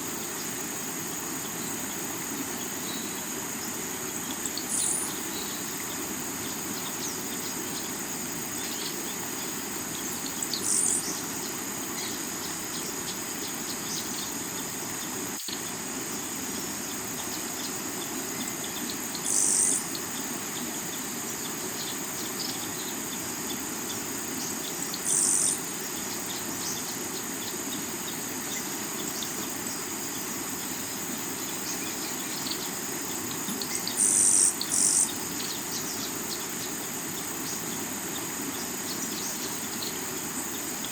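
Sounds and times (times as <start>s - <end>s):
crickets chirping: 0.0s - 40.9s
loud insect buzzes: 25.0s - 25.6s, 33.7s - 35.5s.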